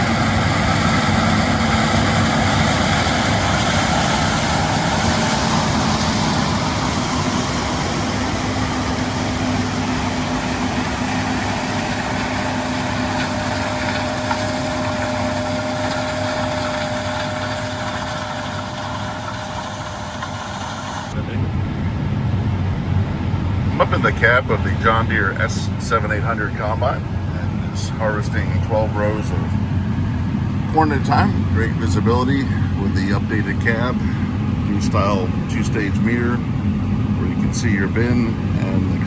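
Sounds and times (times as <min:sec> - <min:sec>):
combine harvester engine drone: 0:00.0 - 0:39.0.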